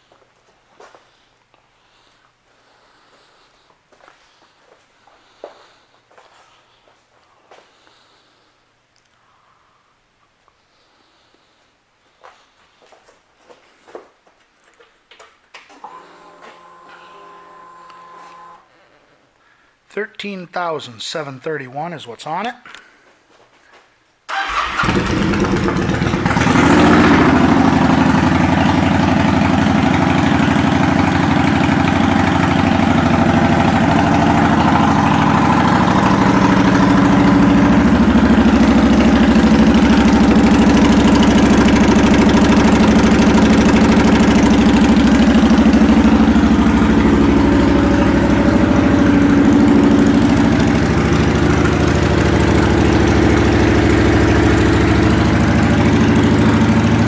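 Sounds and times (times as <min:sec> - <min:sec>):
motorcycle engine idling: 0:24.3 - 0:57.0.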